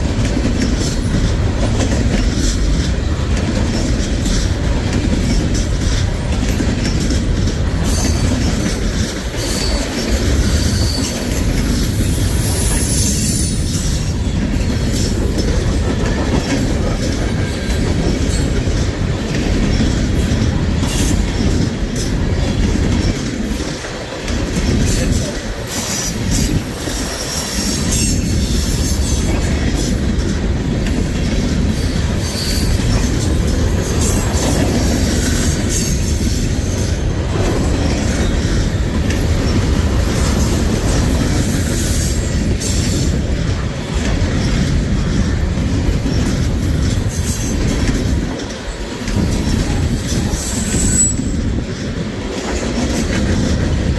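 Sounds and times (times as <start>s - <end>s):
freight train rumbling: 0.0s - 53.9s
wheels clicking over rail joints: 0.0s - 53.9s
high-pitched wheel squeal: 50.4s - 51.4s.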